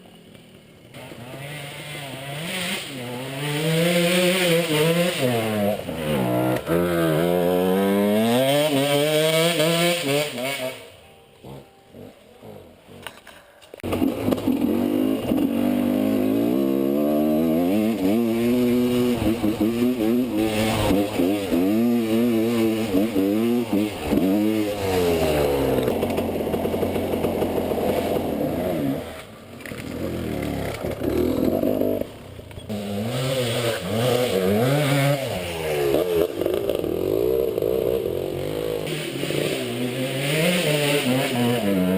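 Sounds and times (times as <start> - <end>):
motorcycle engine revving: 0.0 - 13.1, 13.8 - 41.9.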